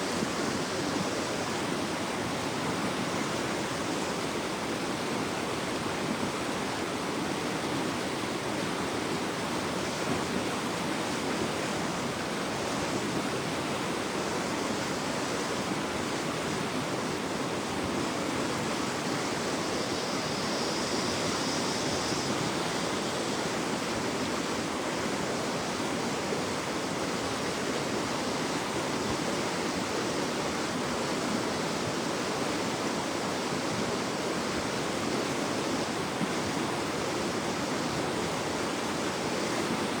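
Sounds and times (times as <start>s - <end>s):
river floodwater rushing: 0.0s - 40.0s.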